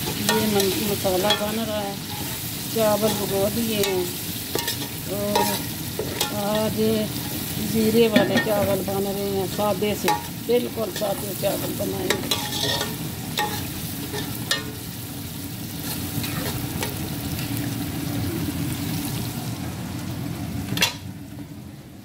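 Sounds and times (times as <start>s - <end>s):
masala frying in oil: 0.0s - 22.0s
metal spoon scraping pot: 12.1s - 14.7s.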